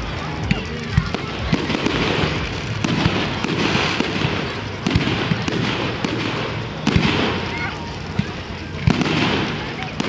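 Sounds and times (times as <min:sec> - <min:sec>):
firework shells bursting: 0:00.0 - 0:10.0
hissing firework crackle: 0:00.0 - 0:10.0.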